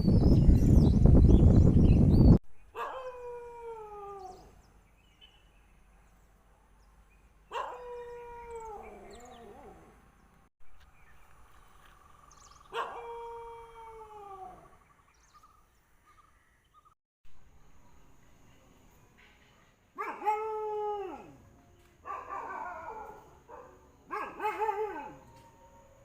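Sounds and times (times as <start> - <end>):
dog howling: 2.8 - 4.5, 7.6 - 10.0, 12.8 - 14.8, 20.0 - 21.4, 22.1 - 25.3.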